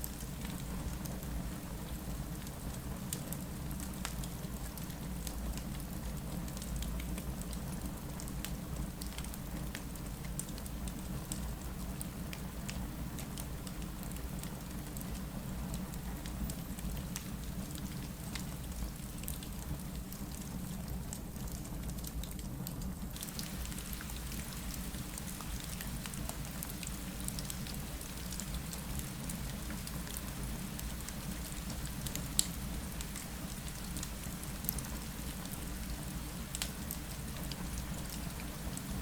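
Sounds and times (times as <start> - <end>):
rain against a window: 0.0 - 39.0
fireplace crackling and popping: 15.8 - 39.0.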